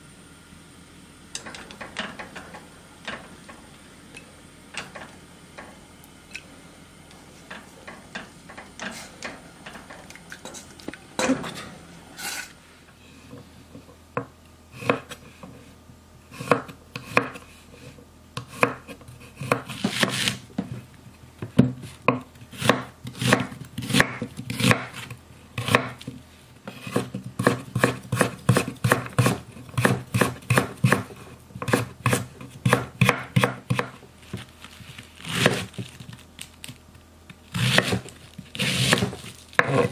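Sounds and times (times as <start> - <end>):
knife chopping on wooden board: 14.2 - 15.2, 16.4 - 17.4, 18.4 - 20.7, 21.5 - 25.0, 25.6 - 26.0, 26.7 - 34.0, 35.3 - 35.7, 37.5 - 39.9.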